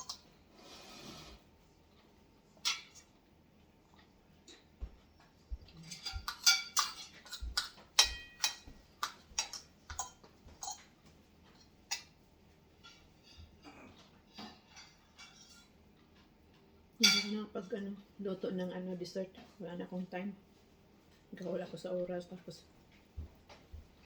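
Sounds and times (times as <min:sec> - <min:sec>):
cutlery clinking against plates: 0:00.0 - 0:00.3, 0:02.6 - 0:03.2, 0:05.7 - 0:12.2, 0:12.8 - 0:16.3, 0:17.0 - 0:17.4.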